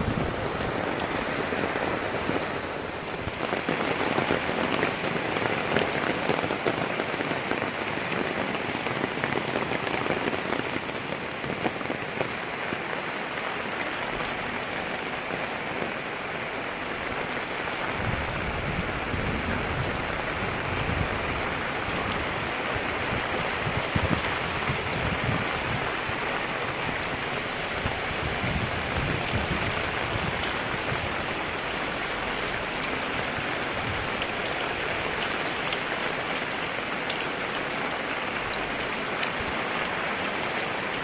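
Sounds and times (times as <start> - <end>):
heavy rain pattering: 0.0 - 41.0.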